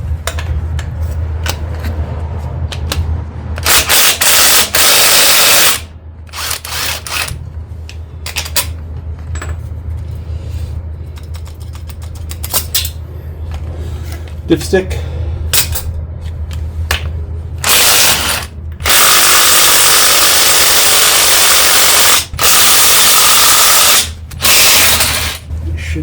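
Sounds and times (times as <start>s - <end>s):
low hum: 0.0s - 19.2s
power tool running: 3.6s - 7.3s, 17.6s - 25.4s
tools clicking on bolts: 11.1s - 13.0s.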